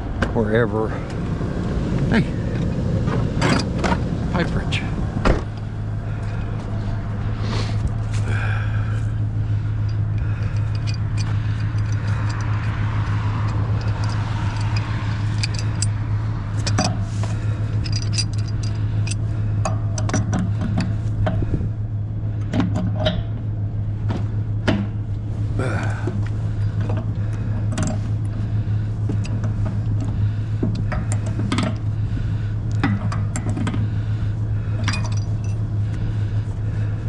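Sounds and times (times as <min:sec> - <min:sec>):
vehicle engine idling: 0:00.0 - 0:37.0
scrap metal clinking and clanking: 0:08.9 - 0:21.6, 0:25.7 - 0:32.0, 0:32.7 - 0:37.0.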